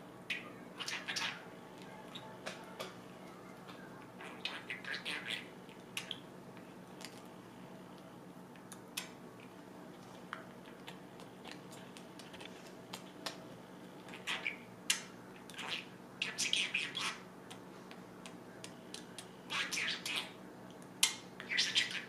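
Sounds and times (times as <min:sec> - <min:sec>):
budgerigar chirping: 0:04.2 - 0:05.5.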